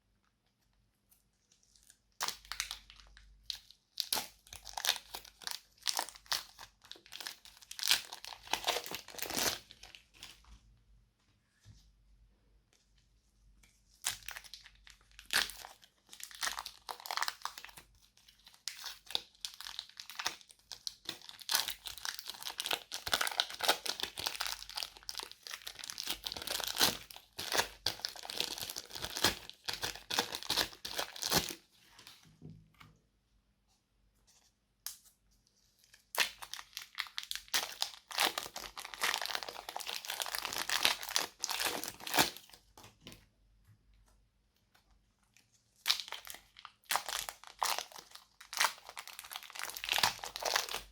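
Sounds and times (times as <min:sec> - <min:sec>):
slime squeezed crackling and popping: 0:36.1 - 0:42.4, 0:45.8 - 0:50.9.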